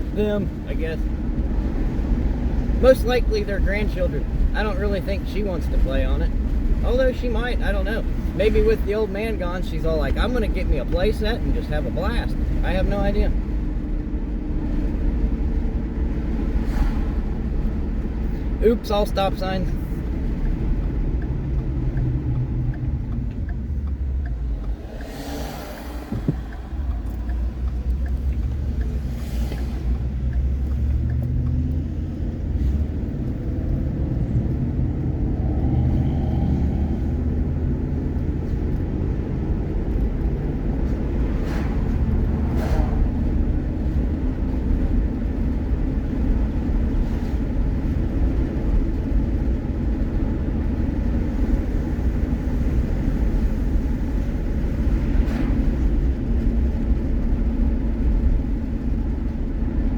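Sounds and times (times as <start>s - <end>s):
vehicle engine and road rumble: 0.0s - 59.9s.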